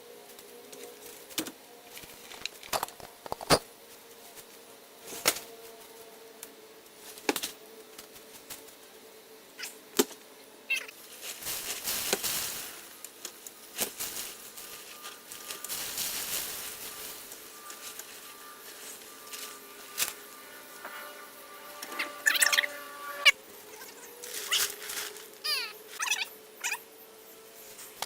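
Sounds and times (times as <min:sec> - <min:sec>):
rustling: 0:11.0 - 0:20.3, 0:23.6 - 0:26.1.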